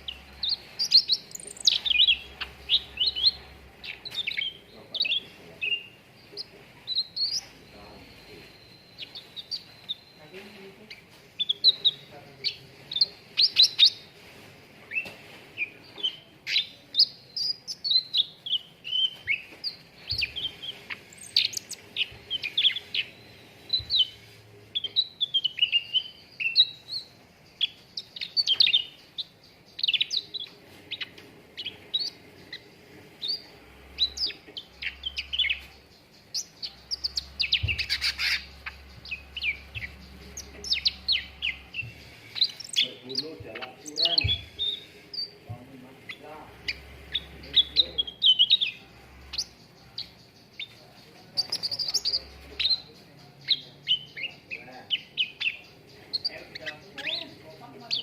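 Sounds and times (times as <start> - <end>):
bird chirping and whistling: 36.3 - 45.4, 46.6 - 50.7.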